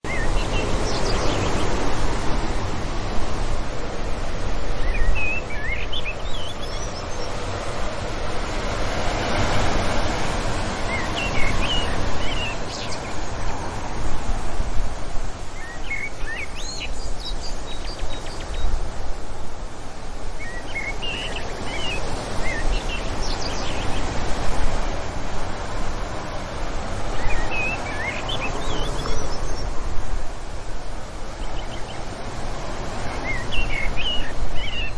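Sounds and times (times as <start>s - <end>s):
wind blowing in gusts: 0.0s - 34.9s
small birds chirping: 0.1s - 1.9s, 4.6s - 7.7s, 10.8s - 13.7s, 15.4s - 18.9s, 20.4s - 24.6s, 27.0s - 30.0s, 33.0s - 34.9s.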